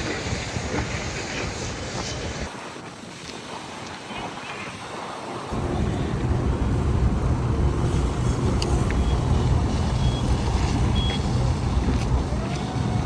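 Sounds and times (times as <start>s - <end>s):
heavy vehicle engine running: 5.5s - 13.0s.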